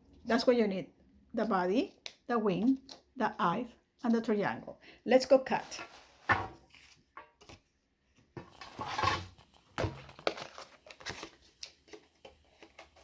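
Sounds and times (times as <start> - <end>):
cardboard crinkling: 8.4 - 13.0.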